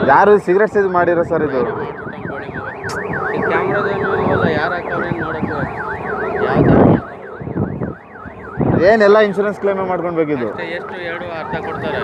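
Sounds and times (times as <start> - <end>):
electronic siren yelping: 0.0 - 12.0.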